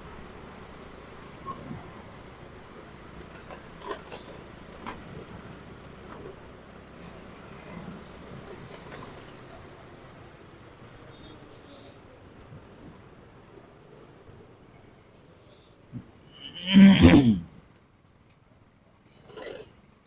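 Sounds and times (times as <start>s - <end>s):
vehicle hum in traffic: 0.0s - 20.0s.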